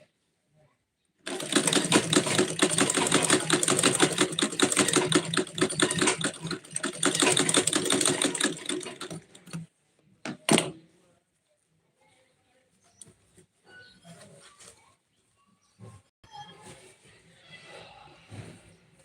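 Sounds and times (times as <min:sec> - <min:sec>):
sewing machine stitching: 0:01.3 - 0:09.6.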